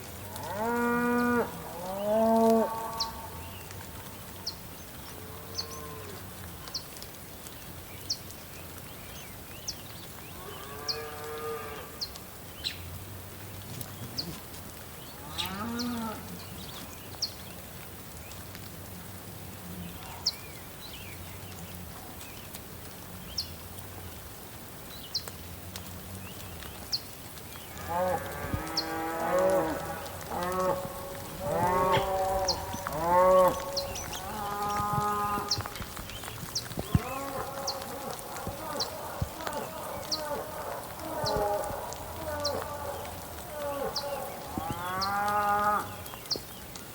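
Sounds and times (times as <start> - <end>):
cattle mooing: 27.8 - 35.7, 36.8 - 45.9.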